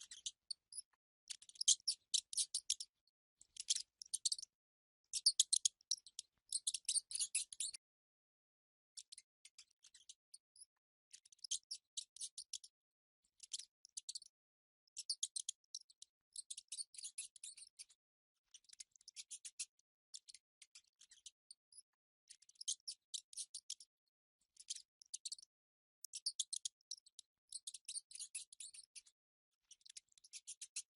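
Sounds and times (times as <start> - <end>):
mice squeaking: 0.0 - 2.9, 3.6 - 4.4, 5.2 - 7.8.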